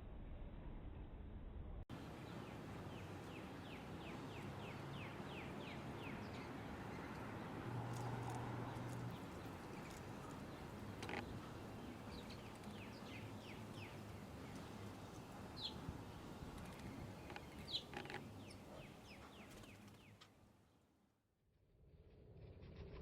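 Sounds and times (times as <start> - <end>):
faint outdoor background noise: 0.0 - 23.0
small birds chirping: 2.0 - 20.4.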